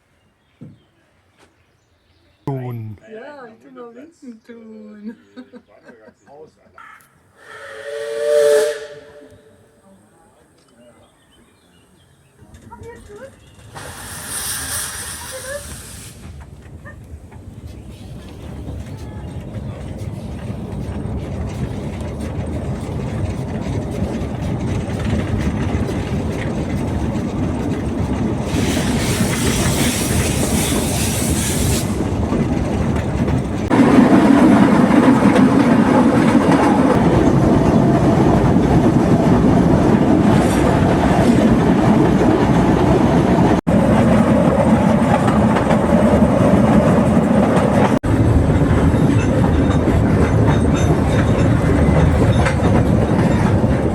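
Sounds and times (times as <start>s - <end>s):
train rumble and wheel clatter: 12.2s - 53.9s
hiss: 13.7s - 16.4s, 28.5s - 32.0s.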